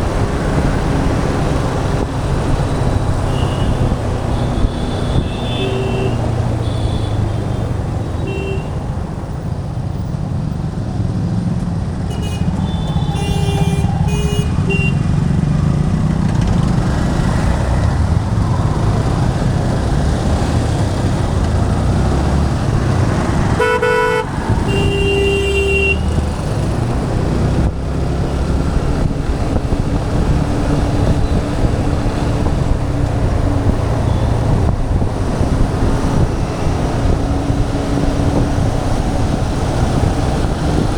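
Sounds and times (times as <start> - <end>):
wind on helmet: 0.0 - 8.0, 26.0 - 40.9
motorcycle engine rumble: 0.0 - 40.9
vehicle horns honking: 2.8 - 8.9, 12.1 - 15.2, 23.5 - 26.5.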